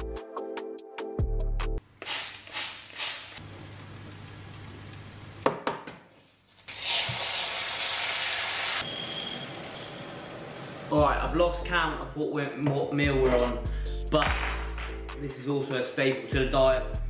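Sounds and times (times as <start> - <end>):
bacon sizzling under grill: 2.0 - 3.5, 6.7 - 10.9
egg sizzling in frying pan: 2.0 - 5.4, 6.7 - 10.9.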